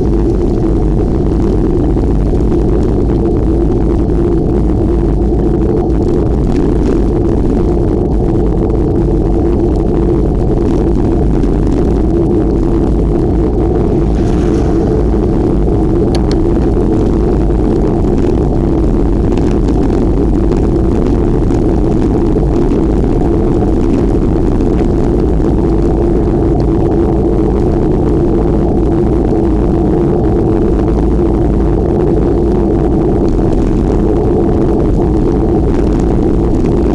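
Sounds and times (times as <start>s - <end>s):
road rumble: 0.0s - 27.7s
wind on microphone: 0.0s - 36.9s.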